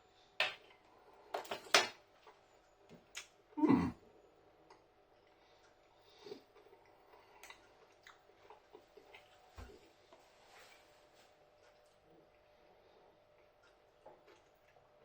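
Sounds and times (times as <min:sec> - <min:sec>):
chewing chocolate: 0:06.0 - 0:09.9, 0:11.6 - 0:15.0.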